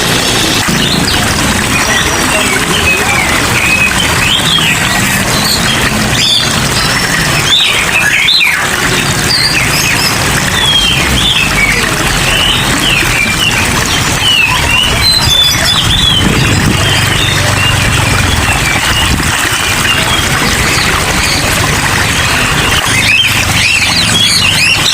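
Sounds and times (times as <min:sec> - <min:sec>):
rain falling: 0:00.0 - 0:24.9
songbirds chirping and twittering: 0:00.0 - 0:24.9.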